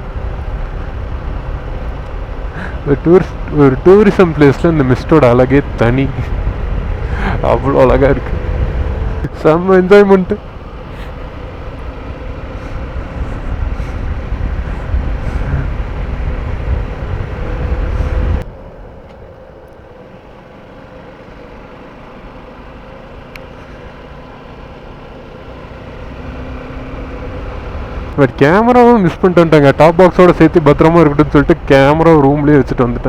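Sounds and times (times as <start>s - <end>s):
wind buffeting microphone: 0.0s - 9.3s, 10.5s - 19.0s
motorcycle engine: 0.0s - 33.0s.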